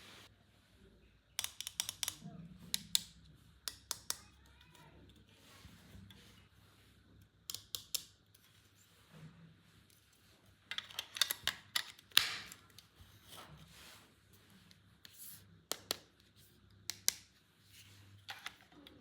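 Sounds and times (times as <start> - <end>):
plastic parts clicking and snapping: 1.4 - 4.3, 7.4 - 8.2, 10.7 - 12.9.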